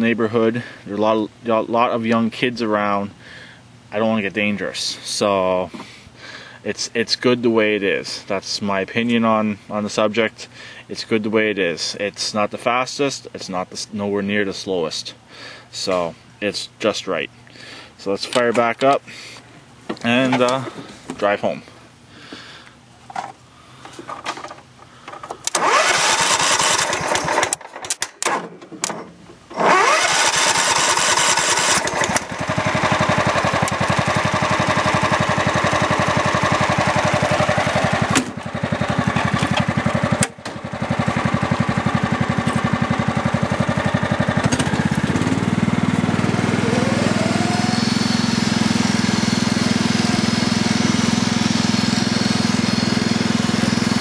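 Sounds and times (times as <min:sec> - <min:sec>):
lawn tractor engine starting and running: 0:24.1 - 0:54.0.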